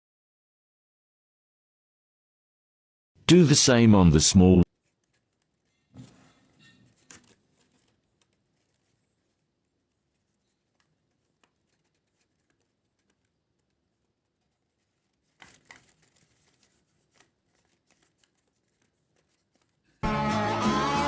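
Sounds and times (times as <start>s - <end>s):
paper rustling: 4.7s - 20.0s.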